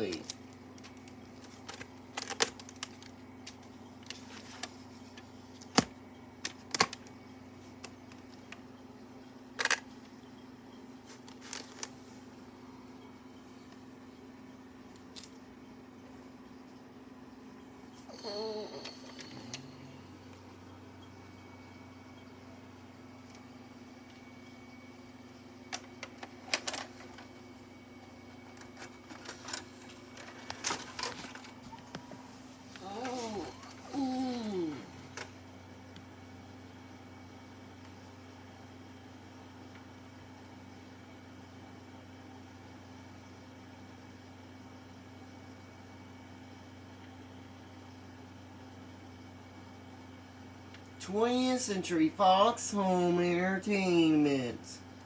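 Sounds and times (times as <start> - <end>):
low hum: 0.0 - 53.2
plastic cassette clicks and knocks: 0.2 - 4.7, 5.6 - 7.1, 9.6 - 9.9.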